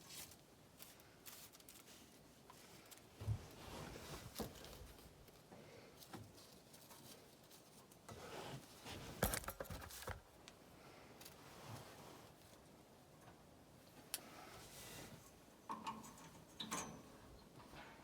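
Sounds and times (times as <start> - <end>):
tools and metal parts clicking: 15.7 - 17.1.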